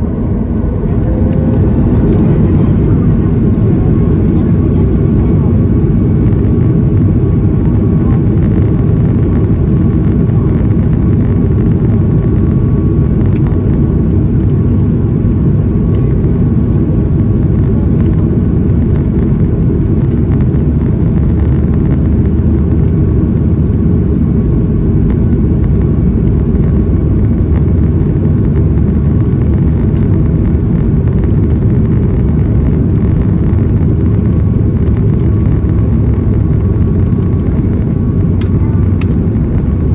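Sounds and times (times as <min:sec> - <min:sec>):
faint steady whine: 0:00.0 - 0:39.9
jet engine and airflow noise: 0:00.0 - 0:39.9.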